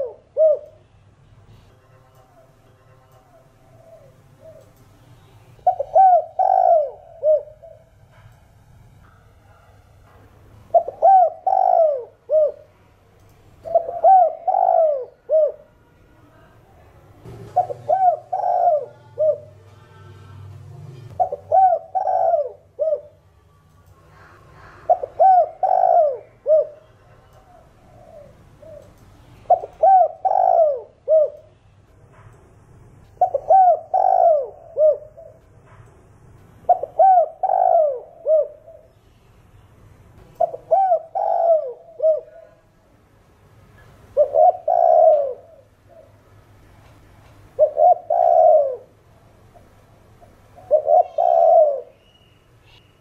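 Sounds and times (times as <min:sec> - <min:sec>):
dove cooing: 0:00.0 - 0:00.8, 0:03.6 - 0:04.8, 0:05.6 - 0:07.9, 0:10.7 - 0:12.8, 0:13.6 - 0:15.7, 0:17.3 - 0:23.2, 0:24.1 - 0:31.5, 0:33.2 - 0:35.4, 0:36.7 - 0:39.0, 0:40.4 - 0:42.7, 0:44.1 - 0:46.2, 0:47.5 - 0:49.0, 0:49.6 - 0:52.0.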